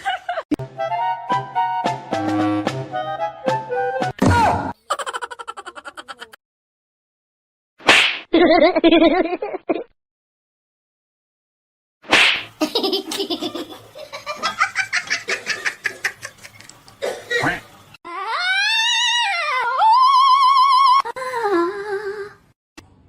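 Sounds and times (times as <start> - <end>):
rapid pulsed laughter: 4.8 - 6.4, 12.6 - 16.7.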